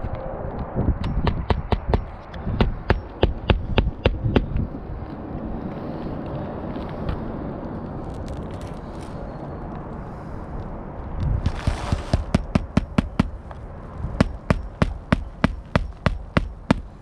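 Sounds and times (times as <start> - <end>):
hammer striking nails: 1.0 - 4.5, 11.4 - 13.4, 14.2 - 17.0.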